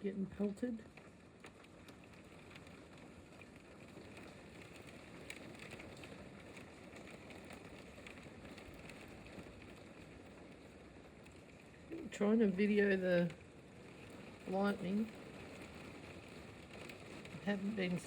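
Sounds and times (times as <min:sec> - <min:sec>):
hail and rain falling: 0:00.0 - 0:18.0
hailstones ticking: 0:00.0 - 0:18.0.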